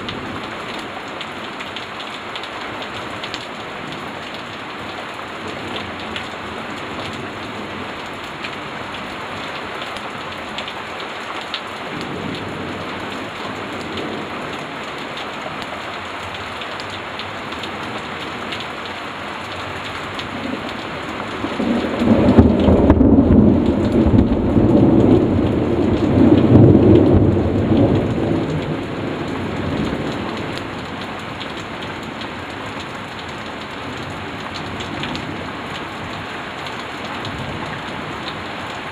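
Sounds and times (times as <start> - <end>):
steady rain: 0.0 - 38.9
deep thunder rumble: 21.4 - 30.2.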